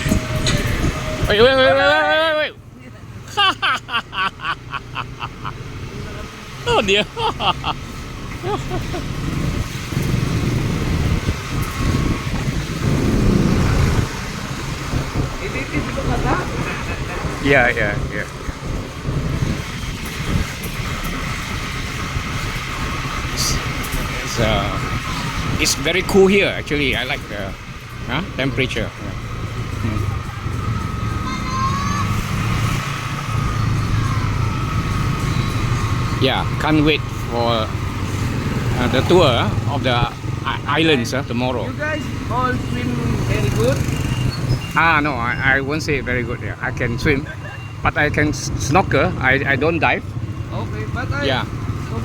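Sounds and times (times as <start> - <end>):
road and wind noise: 0.0 - 52.0
small vehicle engine rumble: 0.0 - 52.0
small motorcycle engine running: 32.2 - 44.5.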